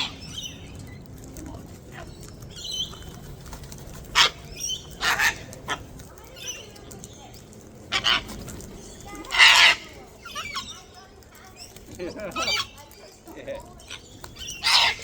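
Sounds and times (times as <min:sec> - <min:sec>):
birds chirping: 0:00.0 - 0:15.0
cockatoos screeching: 0:04.0 - 0:06.8, 0:07.9 - 0:11.0, 0:13.9 - 0:15.0.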